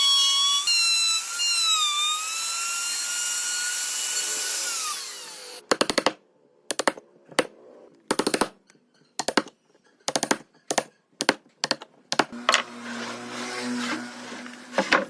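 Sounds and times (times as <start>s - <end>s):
power tool motor humming: 0.0s - 5.6s.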